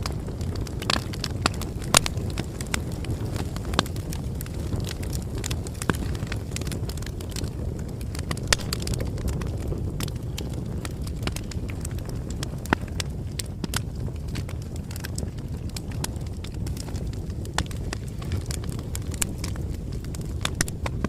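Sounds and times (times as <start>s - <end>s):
burning wood crackling: 0.0s - 21.0s
low rumble of flames: 0.0s - 21.0s.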